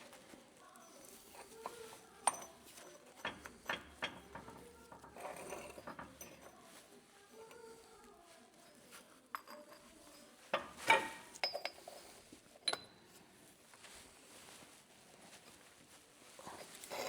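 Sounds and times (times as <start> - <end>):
metal parts and tools clinking: 0.8 - 6.8, 9.3 - 13.0.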